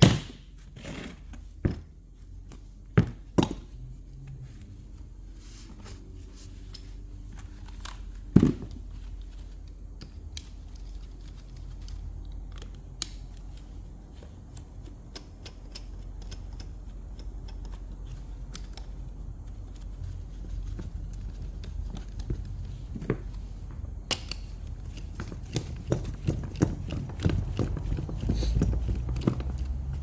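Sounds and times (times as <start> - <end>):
steady low hum: 0.0 - 30.0
tools clicking and tapping: 9.6 - 23.4, 24.0 - 30.0.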